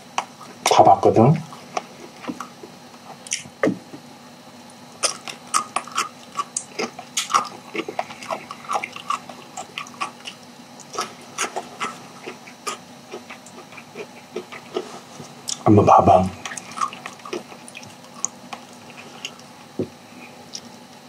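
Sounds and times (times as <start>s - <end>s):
man chewing with wet mouth clicks: 3.2s - 3.5s, 4.6s - 15.7s, 16.4s - 19.8s.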